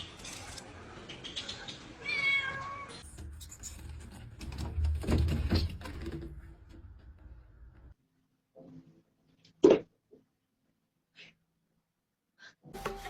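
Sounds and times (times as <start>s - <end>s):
cat meowing: 2.0s - 3.0s.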